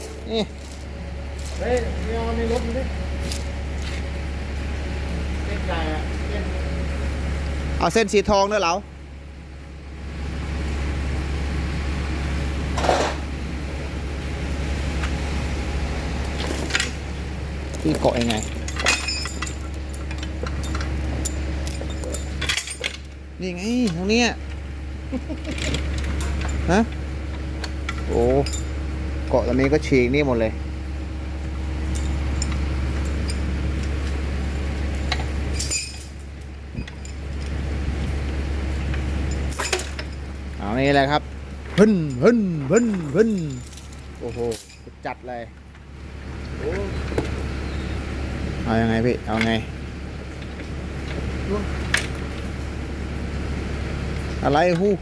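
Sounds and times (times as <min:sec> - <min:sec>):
metal chain rattling: 0:00.0 - 0:04.2, 0:16.4 - 0:24.0, 0:27.6 - 0:28.8, 0:31.8 - 0:33.6, 0:34.4 - 0:37.2, 0:39.2 - 0:44.9
low mechanical hum: 0:00.0 - 0:55.0.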